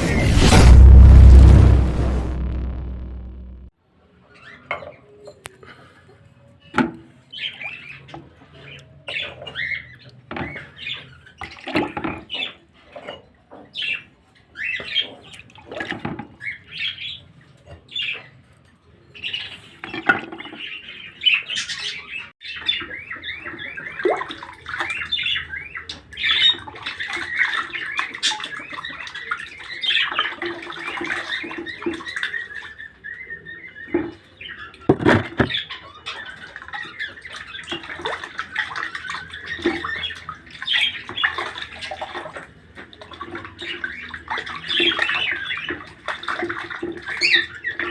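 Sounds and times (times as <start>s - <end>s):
pet birds chirping and squawking: 19.2s - 42.0s.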